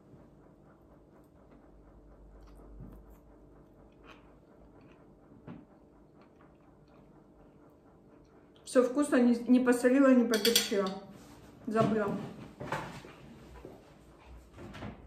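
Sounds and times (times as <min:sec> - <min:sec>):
person chewing: 0:02.4 - 0:07.2.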